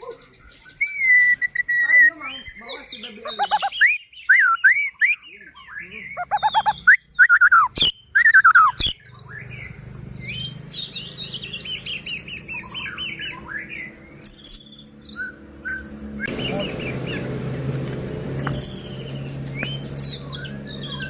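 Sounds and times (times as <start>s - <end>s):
bird singing varied whistles: 0.6s - 2.2s, 3.3s - 21.0s
sharp clicks: 17.8s - 18.8s, 19.5s - 20.2s.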